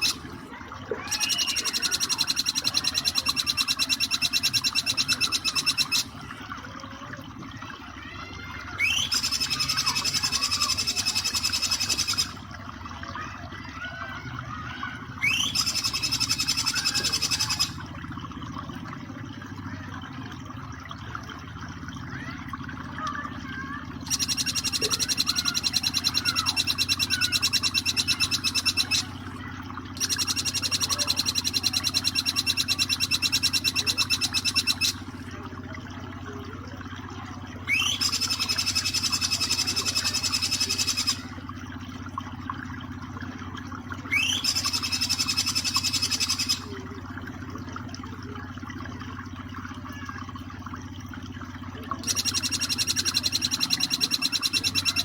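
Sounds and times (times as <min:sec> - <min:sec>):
flowing water: 0:00.0 - 0:55.0
bird singing fast high trill: 0:01.0 - 0:06.1, 0:08.8 - 0:12.4, 0:15.2 - 0:17.8, 0:24.0 - 0:29.1, 0:30.0 - 0:35.0, 0:37.7 - 0:41.4, 0:44.1 - 0:46.7, 0:52.0 - 0:55.0
faint chirps: 0:01.0 - 0:06.3, 0:23.1 - 0:29.3, 0:29.9 - 0:35.4, 0:37.6 - 0:41.4, 0:52.0 - 0:55.0.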